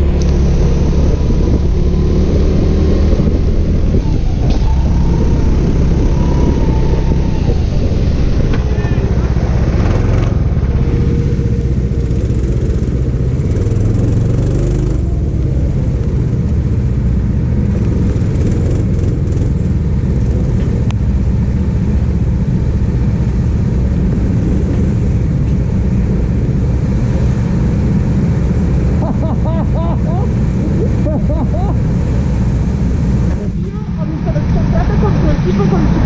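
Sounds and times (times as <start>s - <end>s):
go-kart engine running: 0.0s - 36.0s.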